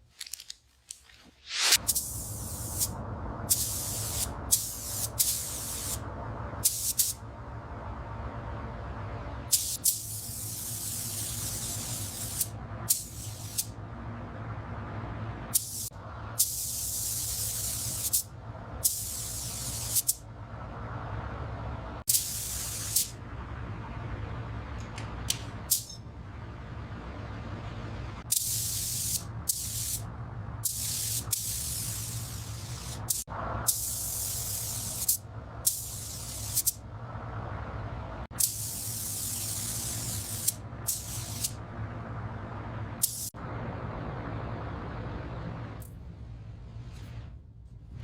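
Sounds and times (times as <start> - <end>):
spray gun hissing: 1.5 - 6.0, 6.6 - 7.2, 9.5 - 13.8, 15.5 - 20.2, 22.1 - 23.2, 28.3 - 30.0, 30.6 - 36.8, 38.4 - 41.6, 43.0 - 43.4
steady low hum: 1.7 - 48.0.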